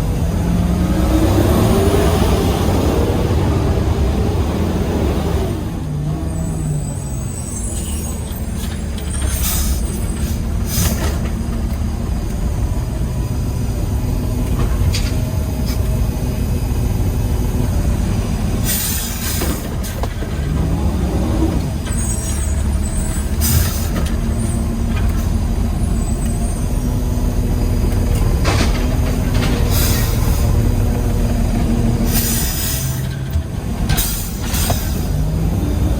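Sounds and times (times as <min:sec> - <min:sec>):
truck engine running: 0:00.0 - 0:35.9
air hissing: 0:32.0 - 0:33.1.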